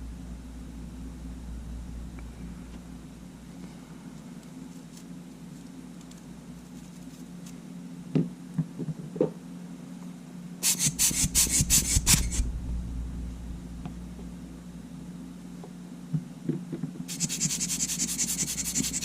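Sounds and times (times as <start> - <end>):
steady low hum: 0.0 - 19.0
scratchy scrubbing strokes: 10.6 - 12.5, 17.1 - 19.0.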